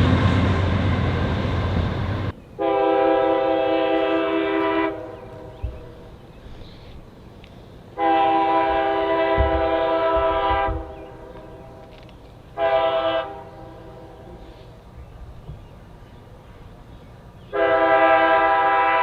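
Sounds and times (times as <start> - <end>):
locomotive air horn: 2.6 - 5.5, 8.0 - 11.0, 12.6 - 14.5, 17.5 - 19.0.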